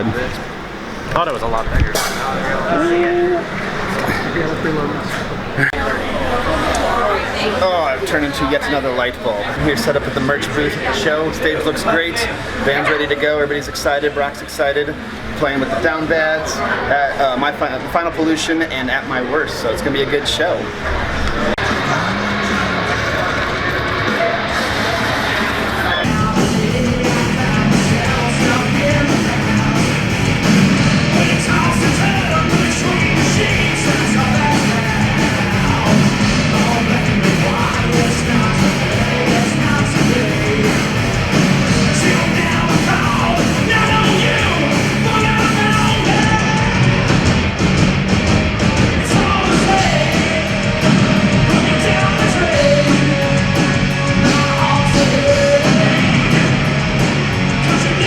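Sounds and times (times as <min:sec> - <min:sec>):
live punk rock band: 0:20.8 - 0:58.0
sung and shouted vocals: 0:21.6 - 0:47.1, 0:48.8 - 0:58.0.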